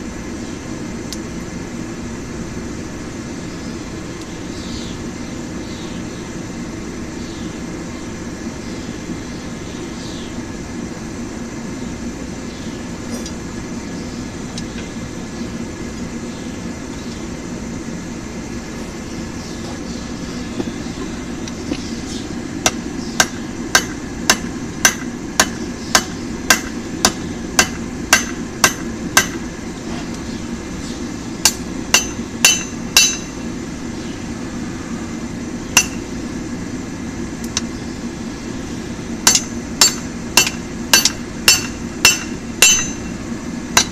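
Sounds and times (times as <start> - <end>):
forge running: 10.9 - 43.9
hammer ringing on anvil: 22.7 - 29.4, 31.4 - 33.4, 35.8 - 36.0, 39.2 - 43.1.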